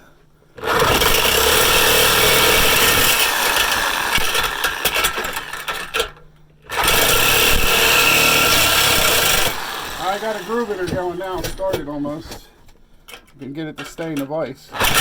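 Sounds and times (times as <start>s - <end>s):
power saw cutting metal pipe: 0.6s - 6.0s, 6.7s - 11.4s, 14.8s - 15.0s.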